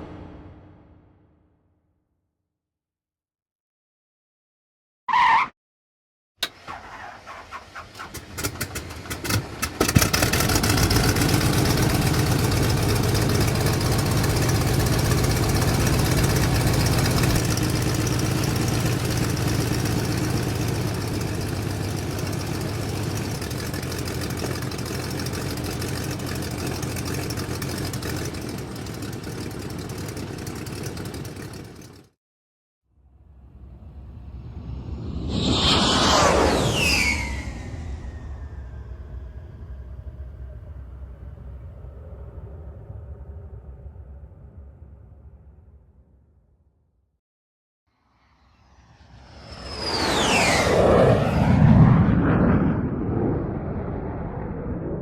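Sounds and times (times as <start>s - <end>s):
engine starter cranking: 6.4s - 10.8s
engine idling: 7.4s - 32.1s.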